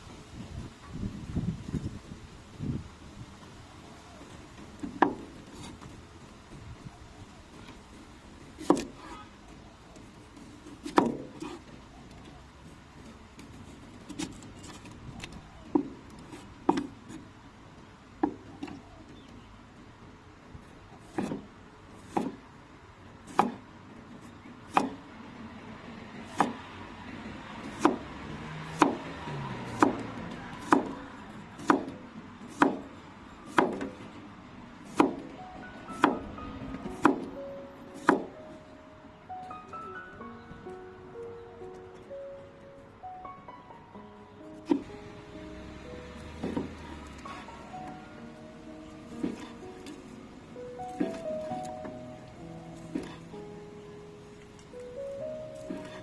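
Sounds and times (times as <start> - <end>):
knife chopping on wooden board: 21.0 - 22.4, 23.3 - 23.6, 24.7 - 25.0, 26.3 - 26.6, 27.6 - 28.1, 28.7 - 30.0, 30.6 - 31.0, 31.6 - 32.9, 33.5 - 34.0, 34.9 - 35.3, 36.0 - 36.2, 36.9 - 37.3, 38.0 - 38.4, 49.2 - 50.0, 52.9 - 53.2
soft background music: 34.3 - 56.0.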